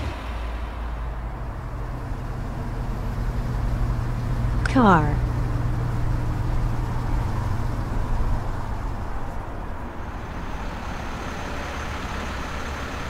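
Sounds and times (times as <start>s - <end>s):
car engine running: 0.0s - 13.0s
road noise: 0.0s - 13.0s.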